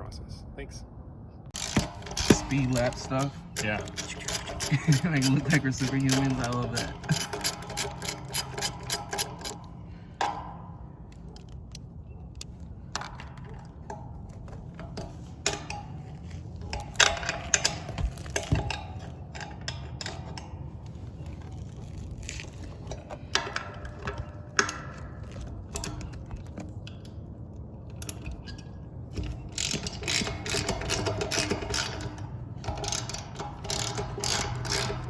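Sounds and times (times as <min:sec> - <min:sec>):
ratchet clicking: 0:01.6 - 0:09.7, 0:29.2 - 0:35.0
metallic clinking of tools: 0:01.6 - 0:10.4, 0:28.0 - 0:35.0.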